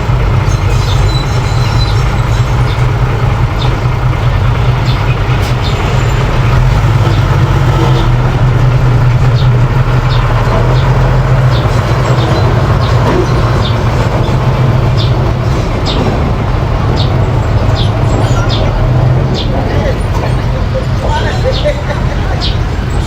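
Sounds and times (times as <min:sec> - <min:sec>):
bulldozer engine running: 0:00.0 - 0:23.0
high squeaks or clinks: 0:00.4 - 0:02.8.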